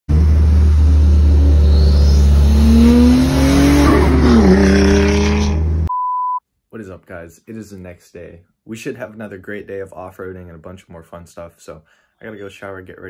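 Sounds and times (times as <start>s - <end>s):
car engine revving: 0.1s - 5.9s.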